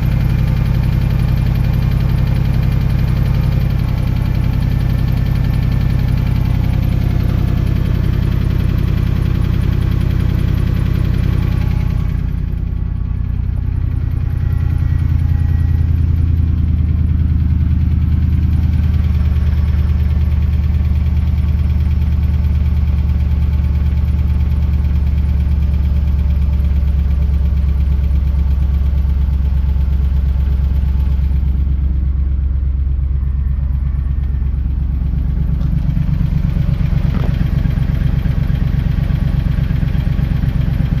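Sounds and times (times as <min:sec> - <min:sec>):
engine running: 0:00.0 - 0:41.0
engine ticking noise: 0:00.0 - 0:41.0.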